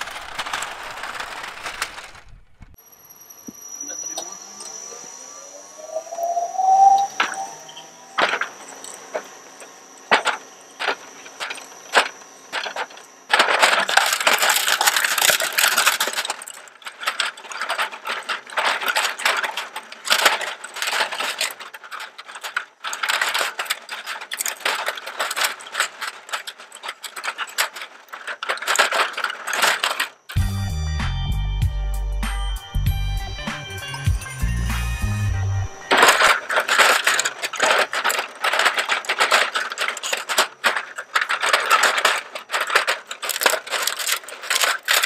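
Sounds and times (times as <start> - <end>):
plastic cracking in shredder: 0.0 - 2.8, 8.2 - 30.4, 35.8 - 45.0
plastic crunching: 0.0 - 2.8, 8.2 - 30.4, 33.3 - 45.0
shredder high whine: 2.8 - 13.3.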